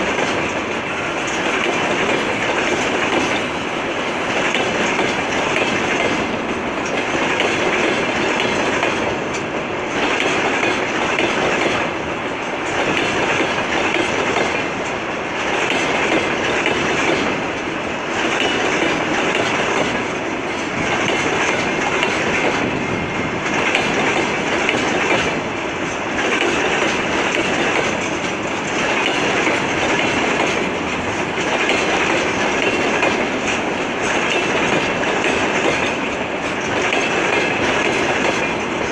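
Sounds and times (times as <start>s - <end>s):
train wheels clattering: 0.0s - 38.9s.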